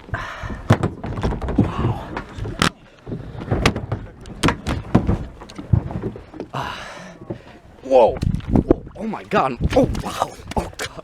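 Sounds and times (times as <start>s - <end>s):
sharp knocks and bumps: 0.6s - 6.5s.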